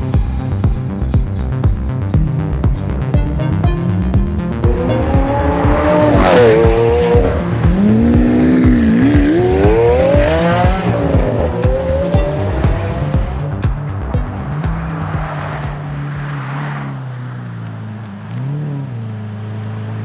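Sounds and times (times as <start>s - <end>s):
electronic music with steady beat: 0.0s - 16.0s
car engine revving: 0.0s - 20.0s.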